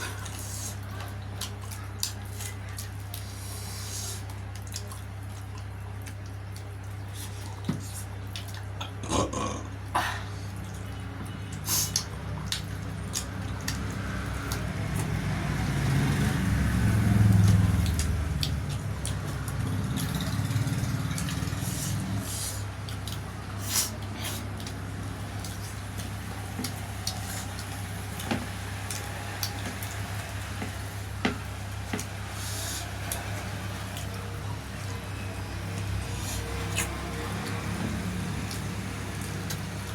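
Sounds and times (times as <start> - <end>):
lip smacks and chewing: 0.0 - 9.0, 10.5 - 39.9
slurping: 10.5 - 31.1, 35.2 - 39.9.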